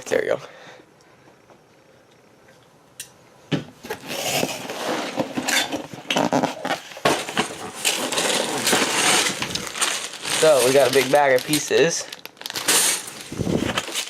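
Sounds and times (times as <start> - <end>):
plastic pieces rattling in a bag: 7.1 - 14.0.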